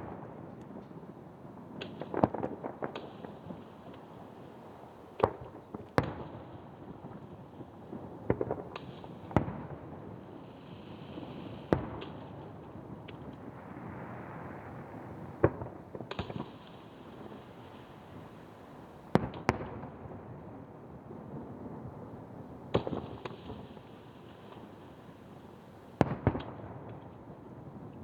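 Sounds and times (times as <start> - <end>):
fireworks crackling: 10.6 - 19.2
fireworks booming with echo: 10.8 - 20.4, 22.7 - 27.0.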